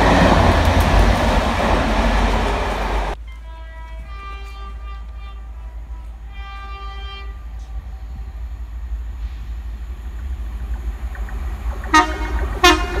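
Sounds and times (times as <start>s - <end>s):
train rumbling past: 0.0s - 13.0s
train horn toots: 3.2s - 8.4s, 11.8s - 13.0s.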